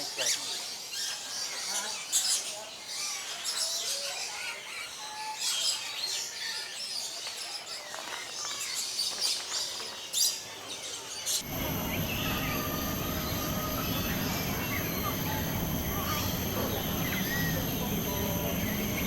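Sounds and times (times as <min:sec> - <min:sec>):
flock of parrots calling: 0:11.4 - 0:19.0.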